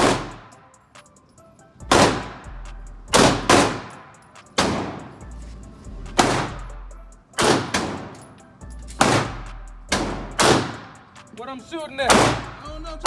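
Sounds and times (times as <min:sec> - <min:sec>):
gunshots with echoing tail: 0:00.0 - 0:00.5, 0:01.9 - 0:02.5, 0:03.1 - 0:05.2, 0:06.2 - 0:06.7, 0:07.4 - 0:08.2, 0:09.0 - 0:11.0.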